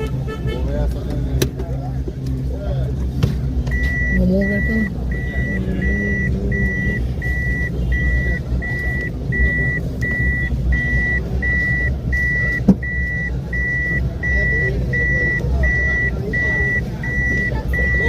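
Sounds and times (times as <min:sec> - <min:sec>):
vehicle rumble in traffic: 0:00.0 - 0:18.0
high electronic beeps: 0:03.7 - 0:18.0.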